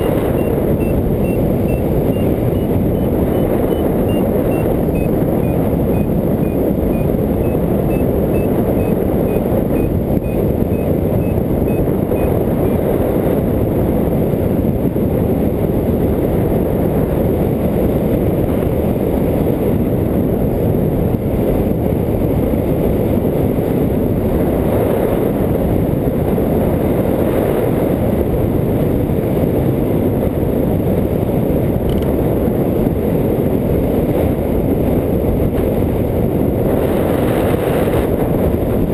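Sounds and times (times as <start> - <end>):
variometer beeping: 0.0 - 12.9
wind rushing on microphone: 0.0 - 38.9.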